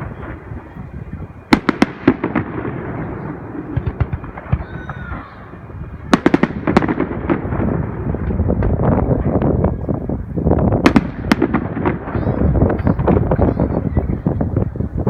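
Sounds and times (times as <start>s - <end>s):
fireworks bangs: 0.0s - 15.0s
fireworks crackling pops: 0.0s - 15.0s.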